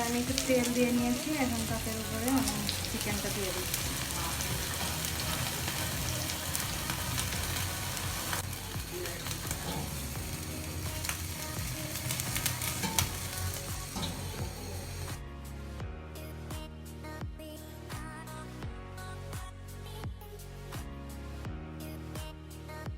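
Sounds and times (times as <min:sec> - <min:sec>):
chicken sizzling on a grill: 0:00.0 - 0:15.2.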